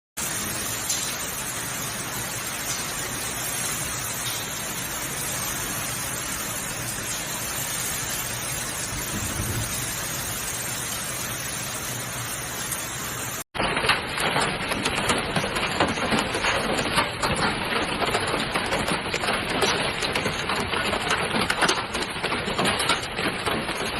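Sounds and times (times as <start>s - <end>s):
heavy rain hissing: 0.2s - 13.5s.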